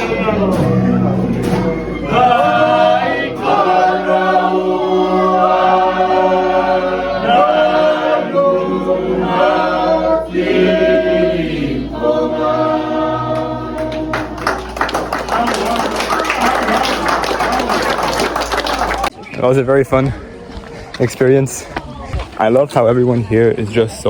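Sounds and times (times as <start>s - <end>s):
group singing in harmony: 0.0s - 15.2s.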